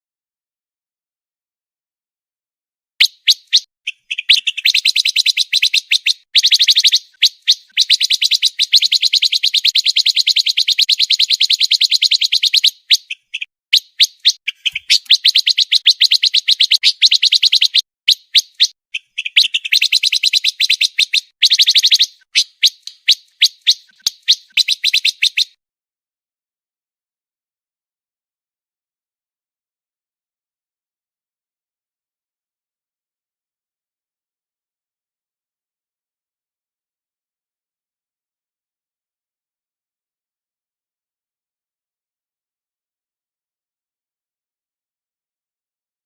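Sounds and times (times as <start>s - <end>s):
bird chips: 3.0s - 25.5s
songbird trilling: 3.0s - 25.6s.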